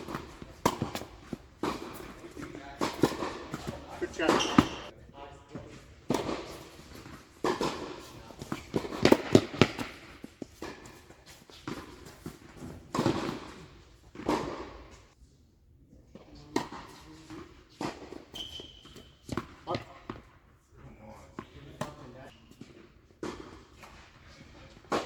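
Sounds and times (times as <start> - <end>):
racket striking ball: 0.0 - 4.9, 6.1 - 14.8
tennis ball bouncing: 0.0 - 4.9, 5.6 - 15.0, 18.9 - 20.3, 24.7 - 25.0.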